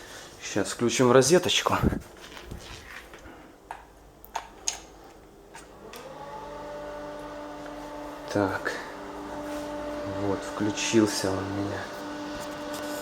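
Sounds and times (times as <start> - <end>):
exhaust fan motor humming: 0.0 - 13.0.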